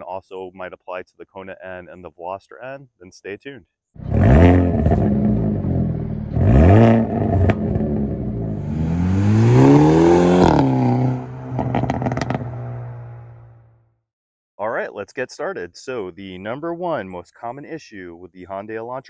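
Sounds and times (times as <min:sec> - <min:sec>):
exhaust pops: 0:04.0 - 0:08.5, 0:10.5 - 0:13.2
car engine revving: 0:04.0 - 0:13.7.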